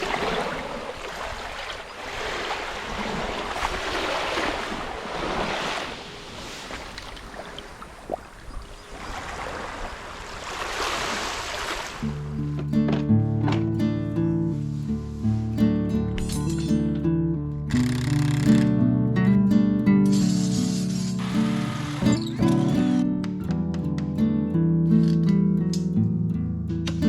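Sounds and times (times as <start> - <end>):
sea waves washing ashore: 0.0 - 12.4, 20.2 - 22.3.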